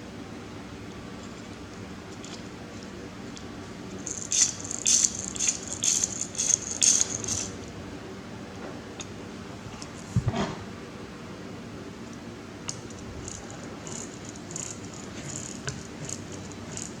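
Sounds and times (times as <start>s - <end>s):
small hard object rattling: 4.0s - 7.6s, 12.9s - 17.0s.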